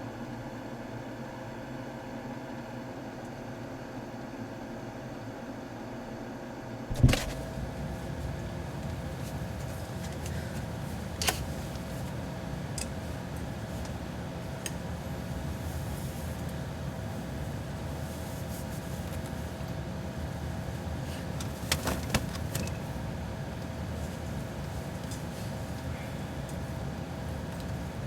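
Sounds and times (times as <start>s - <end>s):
refrigerator humming: 6.2s - 28.0s.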